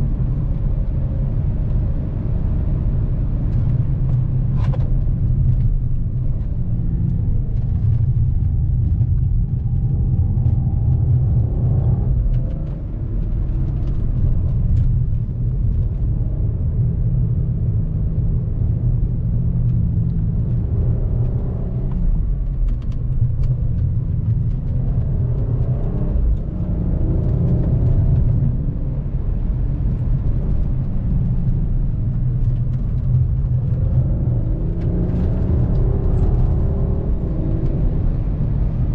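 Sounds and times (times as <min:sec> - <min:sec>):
car engine rumbling: 0:00.0 - 0:38.9
road noise: 0:00.0 - 0:38.9.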